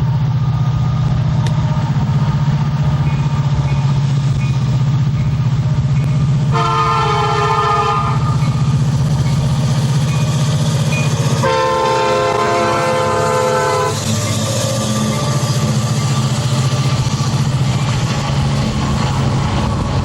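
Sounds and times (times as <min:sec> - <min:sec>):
diesel engine rumble: 0:00.0 - 0:20.0
locomotive air horn: 0:06.5 - 0:08.6, 0:11.4 - 0:15.8.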